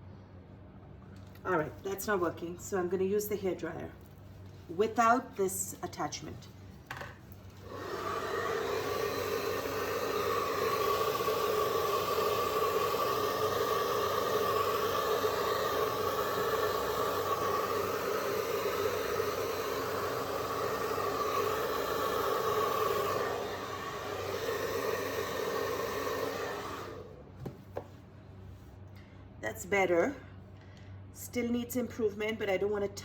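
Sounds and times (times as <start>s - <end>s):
hair dryer blowing: 7.5s - 27.3s.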